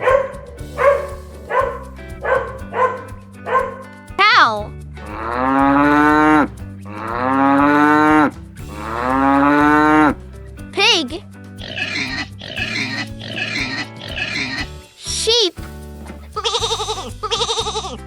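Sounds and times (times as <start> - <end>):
dog barking: 0.0 - 4.4
low background music: 0.0 - 18.0
cow mooing: 4.3 - 10.2.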